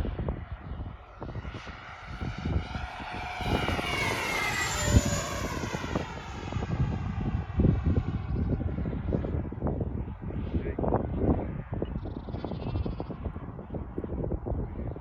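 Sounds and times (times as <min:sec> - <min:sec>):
wind buffeting microphone: 0:00.0 - 0:15.0
model jet motor whining: 0:01.6 - 0:08.7.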